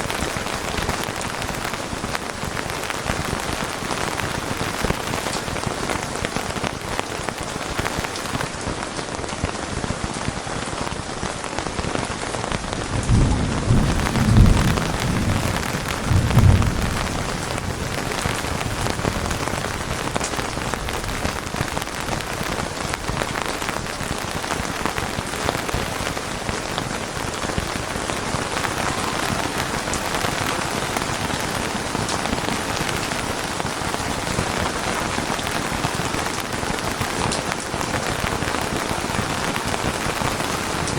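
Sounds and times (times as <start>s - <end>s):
steady rain falling: 0.0s - 40.9s
thunder rumbling: 12.8s - 40.9s.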